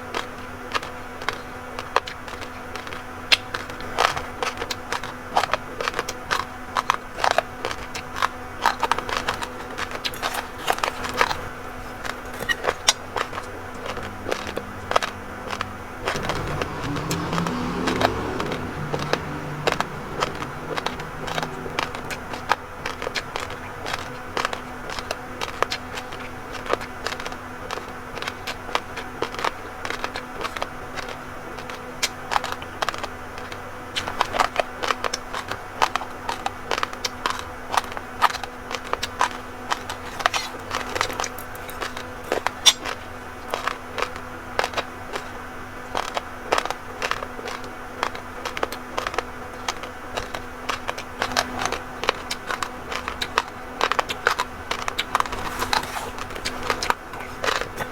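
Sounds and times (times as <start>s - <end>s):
chewing raw rice grains: 0.0s - 57.9s.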